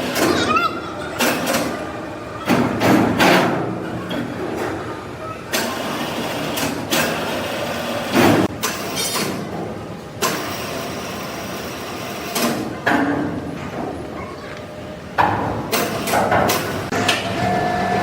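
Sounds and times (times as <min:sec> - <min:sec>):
sawmill machinery running: 0:16.7 - 0:18.0.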